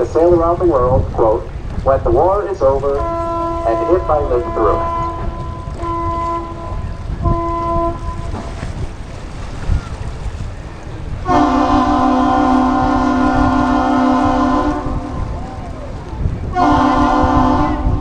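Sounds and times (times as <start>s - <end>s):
deep horn long blast: 2.6s - 8.9s, 11.2s - 18.0s
short horn blasts: 2.9s - 8.6s, 11.3s - 15.3s, 16.5s - 18.0s.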